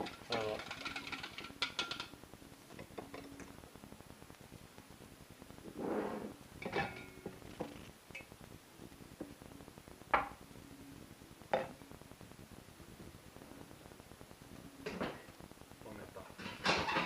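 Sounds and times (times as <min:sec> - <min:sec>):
dishes and utensils clinking: 0:00.0 - 0:02.1, 0:06.6 - 0:07.4, 0:16.4 - 0:17.0.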